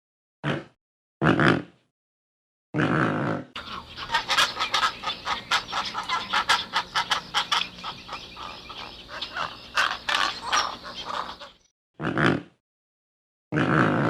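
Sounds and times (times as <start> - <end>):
pelicans calling: 3.6 - 11.6.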